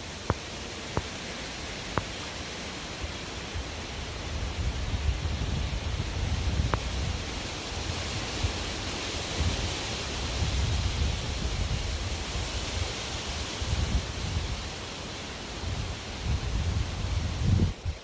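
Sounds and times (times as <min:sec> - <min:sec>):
wind buffeting microphone: 0:03.6 - 0:08.7, 0:09.3 - 0:12.6, 0:13.6 - 0:14.7, 0:15.6 - 0:18.0
strong wind blowing: 0:03.6 - 0:14.7, 0:15.6 - 0:18.0.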